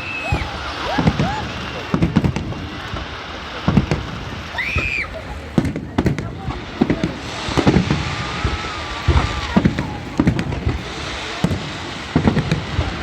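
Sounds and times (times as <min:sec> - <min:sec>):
faint high firework whistle: 0:00.0 - 0:03.0, 0:04.4 - 0:05.3, 0:07.5 - 0:11.6
fireworks bangs and cracks: 0:00.0 - 0:13.0.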